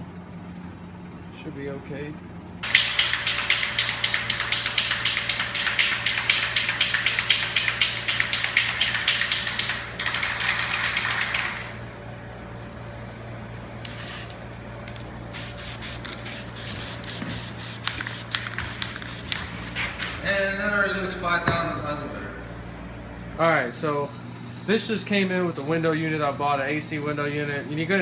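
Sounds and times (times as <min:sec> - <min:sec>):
aerosol spray can hissing: 0:13.8 - 0:14.4, 0:15.3 - 0:19.4.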